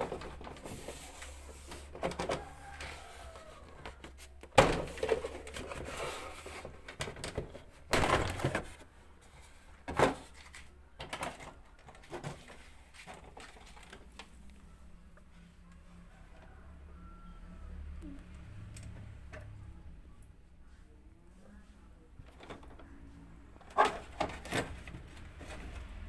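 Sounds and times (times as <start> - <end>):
objects knocking and clattering: 3.8 - 8.9, 23.6 - 26.0.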